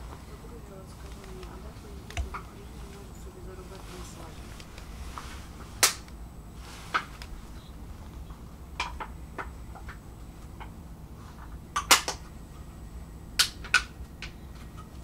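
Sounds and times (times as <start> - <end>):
train carriage rumble: 0.0 - 11.7
sharp clicks and knocks: 8.3 - 10.8.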